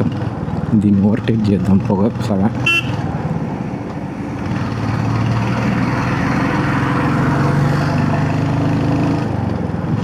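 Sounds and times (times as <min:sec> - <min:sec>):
wind and road noise: 0:00.0 - 0:10.0
motorcycle engine accelerating: 0:02.5 - 0:09.8.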